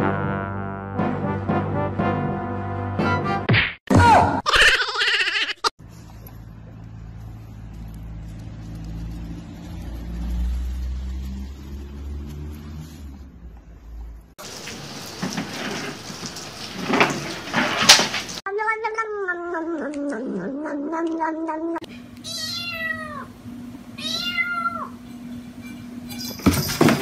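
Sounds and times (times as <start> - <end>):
cat meowing: 18.5 - 23.3, 24.0 - 25.0
kitten meows: 18.5 - 23.3, 24.0 - 25.0.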